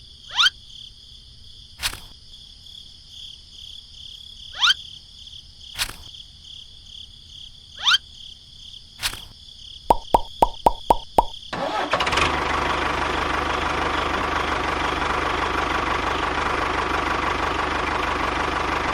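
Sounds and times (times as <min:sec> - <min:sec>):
sharp click: 0:01.8 - 0:02.1, 0:05.8 - 0:06.1, 0:09.0 - 0:09.3
short rising chirps: 0:09.9 - 0:11.4.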